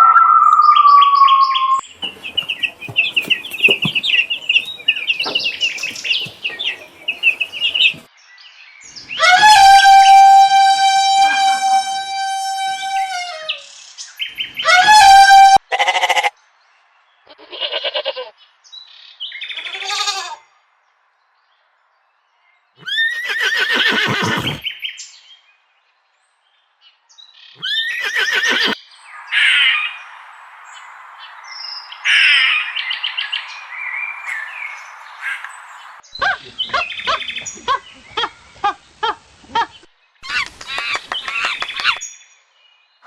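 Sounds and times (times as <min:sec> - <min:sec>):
bird chirps: 0:00.0 - 0:08.1, 0:27.5 - 0:39.0, 0:39.6 - 0:42.3
loud drawn-out animal call: 0:09.2 - 0:13.6, 0:14.6 - 0:16.3, 0:27.6 - 0:28.8.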